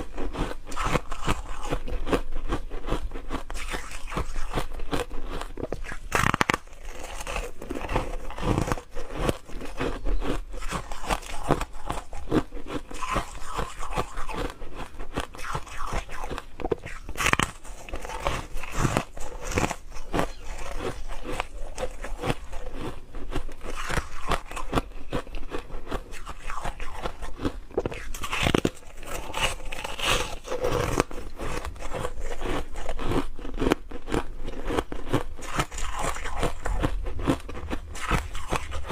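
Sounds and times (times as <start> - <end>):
ice crunching being chewed: 0.0 - 38.9.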